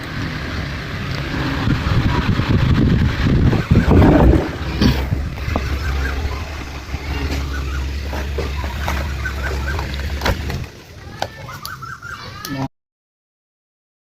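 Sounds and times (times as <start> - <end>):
wind buffeting microphone: 0.0 - 10.8
faint bird calls: 5.4 - 10.4, 11.2 - 12.7.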